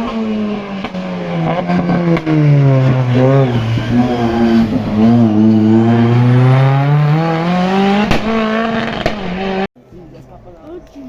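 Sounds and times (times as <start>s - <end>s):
race car engine accelerating: 0.0s - 9.7s
sharp cracks: 8.0s - 9.4s.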